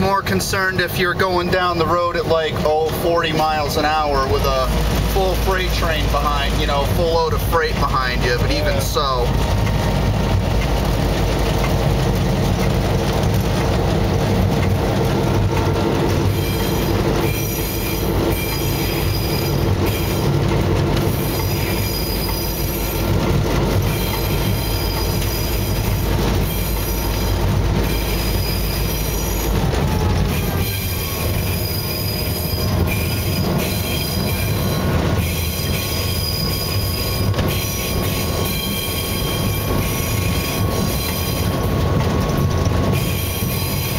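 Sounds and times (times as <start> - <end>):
locomotive engine rumble: 0.0 - 43.9
shrill wheel squeal: 16.0 - 43.9.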